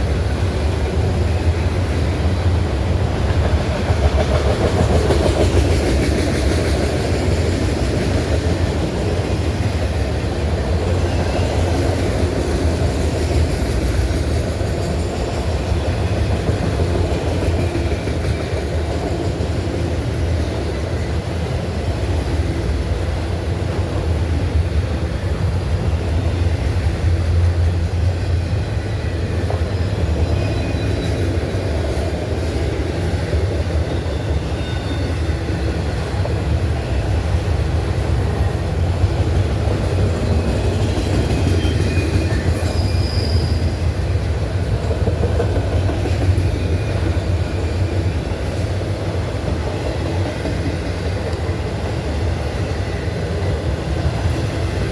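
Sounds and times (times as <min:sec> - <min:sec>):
freight train rumbling on rails: 0:00.0 - 0:54.9
wheel squeals: 0:29.6 - 0:31.6, 0:34.0 - 0:37.1, 0:41.4 - 0:44.2.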